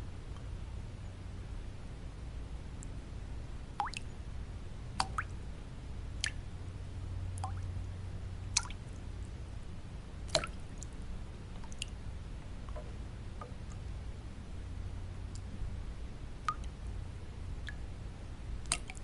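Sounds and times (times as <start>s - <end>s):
low white noise: 0.0s - 19.0s
water drops plinking into water: 3.8s - 4.1s, 5.0s - 5.4s, 6.2s - 6.4s, 7.4s - 7.7s, 8.5s - 8.8s, 10.3s - 10.9s, 11.6s - 12.0s, 16.4s - 16.8s, 18.6s - 19.0s.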